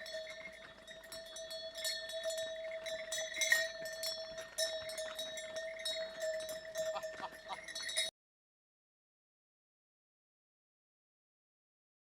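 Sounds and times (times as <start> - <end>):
animal neck bells clanking: 0.0 - 8.1.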